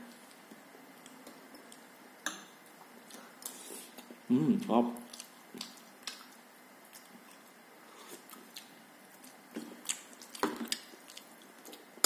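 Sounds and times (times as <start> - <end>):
person chewing: 2.6 - 12.0.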